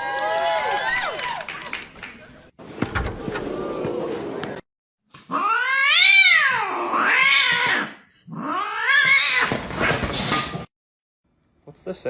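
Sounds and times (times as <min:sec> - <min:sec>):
cat yowling: 0:05.3 - 0:09.6.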